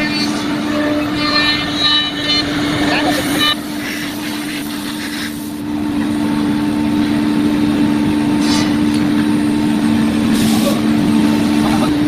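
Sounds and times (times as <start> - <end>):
cnc router drone: 0.0 - 8.4
hissing noise: 1.6 - 5.6.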